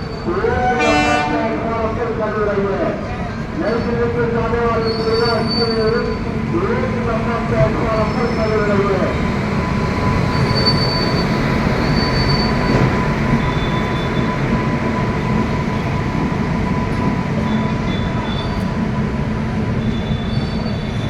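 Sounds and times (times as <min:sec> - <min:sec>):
train coaches rumbling past: 0:00.0 - 0:21.0
wheels or brakes squealing: 0:04.8 - 0:06.3, 0:08.0 - 0:14.7, 0:17.4 - 0:21.0.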